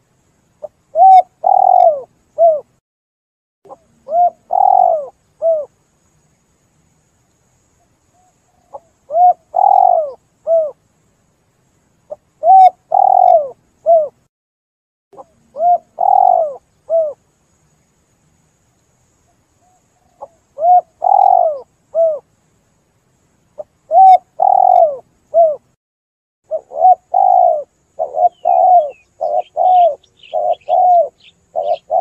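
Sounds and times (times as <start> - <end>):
dove cooing: 0.6 - 2.7, 3.7 - 5.7, 8.2 - 10.8, 12.4 - 14.2, 15.2 - 17.2, 19.6 - 22.3, 23.6 - 25.6, 26.5 - 32.0.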